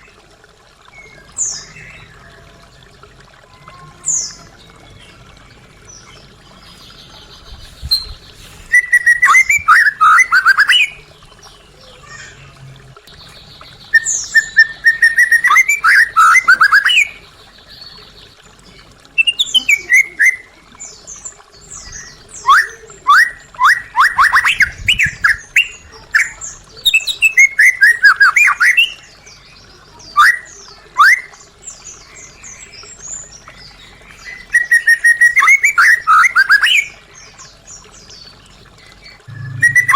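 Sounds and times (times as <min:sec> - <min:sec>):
bird singing whistled phrases: 0:07.9 - 0:11.0, 0:13.9 - 0:17.2, 0:19.2 - 0:20.5, 0:22.4 - 0:29.0, 0:30.1 - 0:31.3, 0:34.4 - 0:36.9, 0:39.3 - 0:39.9.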